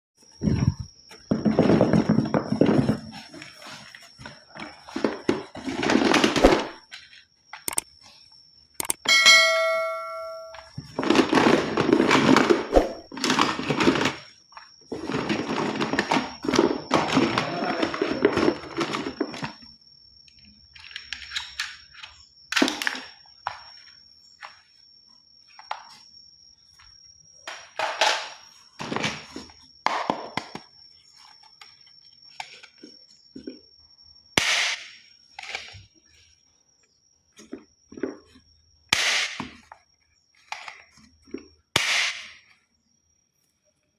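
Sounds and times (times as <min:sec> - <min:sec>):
faint high whine: 0:09.0 - 0:10.9.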